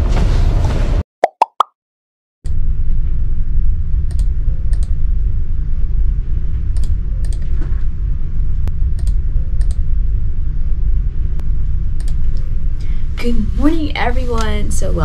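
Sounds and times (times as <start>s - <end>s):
low rumble: 2.5s - 15.0s
sharp clicks: 4.1s - 4.9s, 9.0s - 9.8s, 12.0s - 12.5s.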